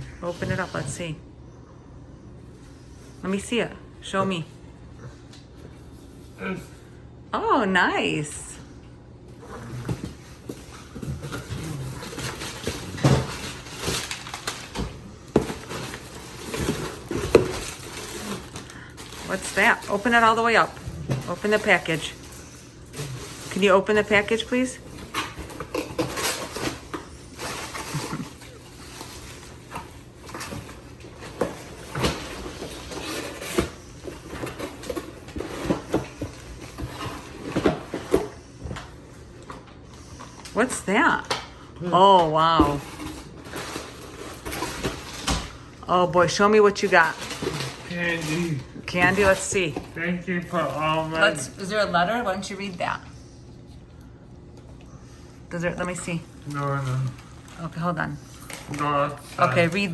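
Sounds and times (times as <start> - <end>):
packaging crinkling and rustling: 9.8 - 38.5, 42.6 - 45.7, 46.7 - 51.4, 56.3 - 59.9.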